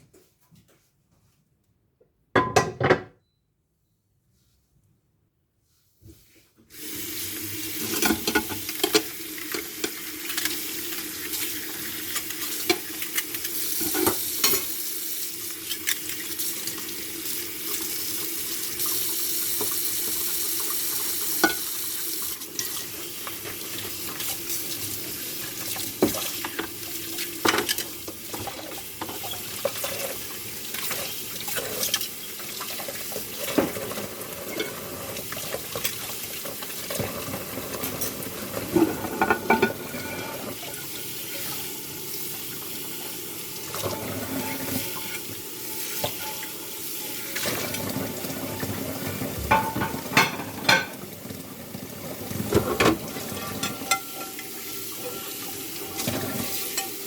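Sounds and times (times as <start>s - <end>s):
tap water running: 6.7s - 57.0s
dishes and cutlery clinking: 37.0s - 40.4s, 46.0s - 46.6s, 49.4s - 51.0s, 52.6s - 57.0s.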